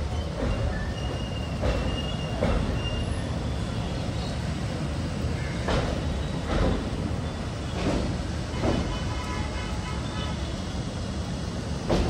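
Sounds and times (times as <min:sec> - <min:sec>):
train wheels rumbling on rail: 0:00.0 - 0:12.0
wheels clacking over rail joint: 0:00.1 - 0:03.2, 0:05.4 - 0:10.2, 0:11.7 - 0:12.0.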